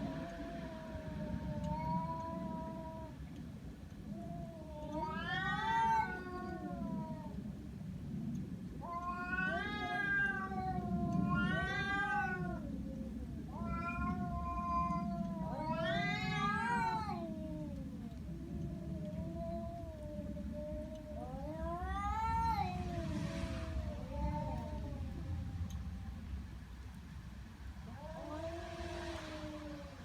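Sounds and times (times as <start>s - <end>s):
cat yowling: 0.1s - 3.2s, 4.1s - 7.4s, 8.8s - 26.1s, 27.9s - 30.0s
low rumble: 17.6s - 30.0s.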